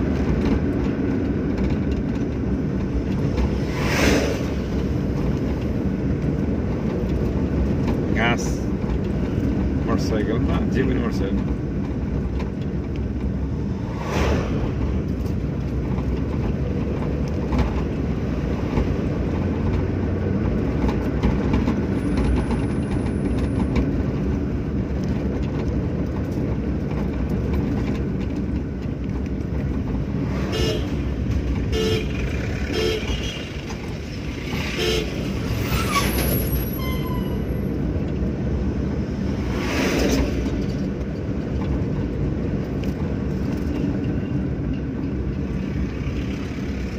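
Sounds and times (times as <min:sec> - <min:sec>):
car engine and road noise: 0:00.0 - 0:46.9
car horn toots: 0:30.4 - 0:31.0, 0:31.7 - 0:33.5, 0:34.7 - 0:35.2.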